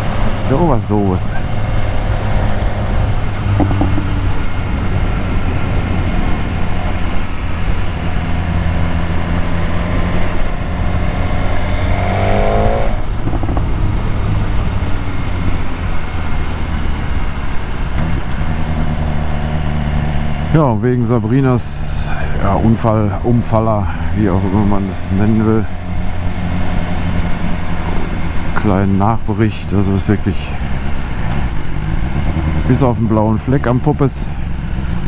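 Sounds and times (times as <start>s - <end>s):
rising whine: 0.0s - 23.7s
motorcycle engine running: 0.0s - 35.0s
rushing noise: 0.0s - 35.0s.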